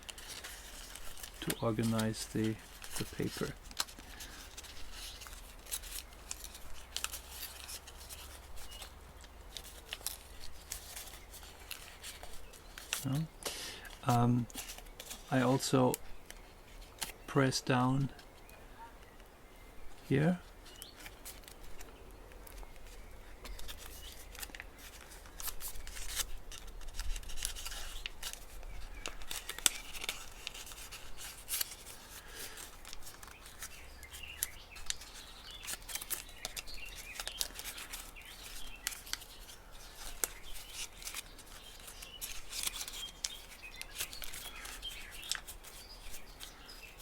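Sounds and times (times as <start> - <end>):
paper crinkling and rustling: 0.0 - 18.5, 20.0 - 47.0.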